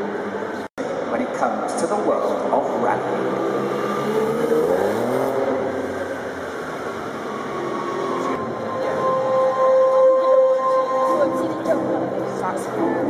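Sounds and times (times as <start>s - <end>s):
car engine revving: 2.3s - 10.4s.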